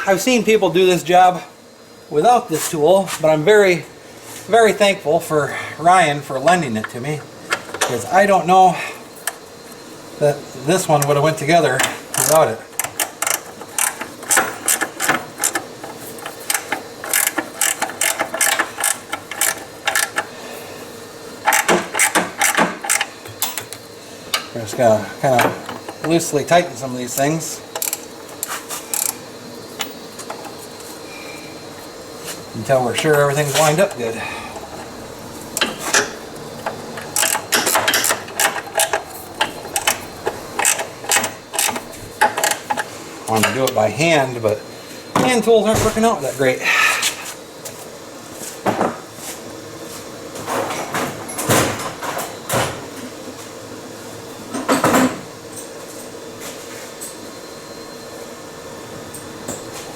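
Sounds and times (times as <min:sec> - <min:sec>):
hand ratchet clicking: 0:12.1 - 0:20.3, 0:21.5 - 0:23.1, 0:27.7 - 0:29.2, 0:35.6 - 0:43.8.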